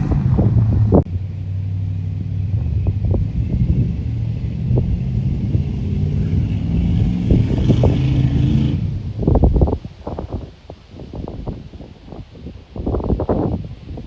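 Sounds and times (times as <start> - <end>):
pickup truck engine running: 0.0 - 8.2.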